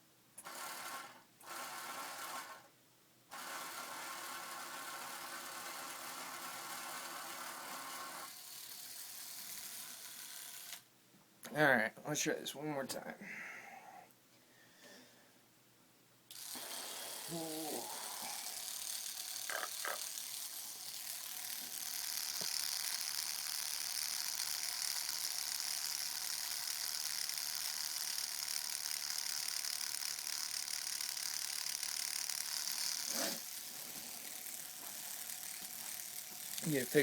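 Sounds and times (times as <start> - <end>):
tattoo machine buzzing: 3.4 - 10.8, 16.3 - 37.0.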